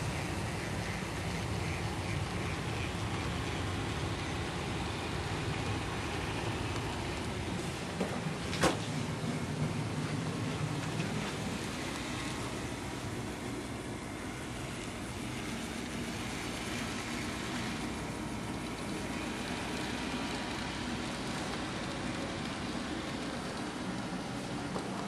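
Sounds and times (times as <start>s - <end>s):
model train whirring on track: 0.0s - 25.0s.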